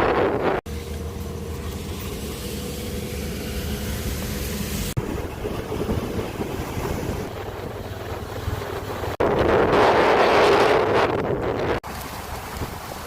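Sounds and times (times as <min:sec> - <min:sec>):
wind buffeting microphone: 0:00.0 - 0:00.6, 0:04.7 - 0:13.0
vehicle and road noise: 0:00.0 - 0:13.0.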